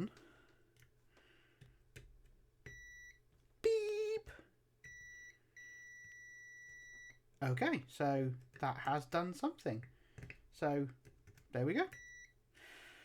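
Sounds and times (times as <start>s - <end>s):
multimeter continuity beeps: 2.7s - 3.2s, 4.8s - 7.2s, 11.9s - 12.4s.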